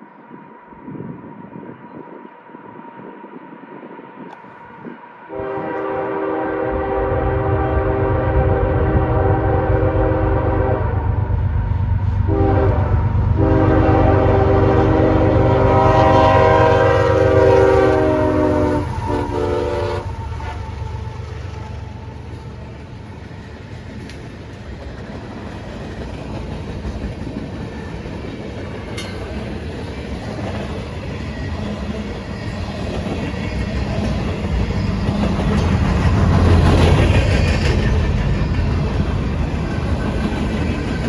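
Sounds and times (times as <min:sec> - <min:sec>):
deep rumble of train: 0:00.0 - 0:41.0
locomotive air horn blasts: 0:05.3 - 0:11.2, 0:12.2 - 0:21.2.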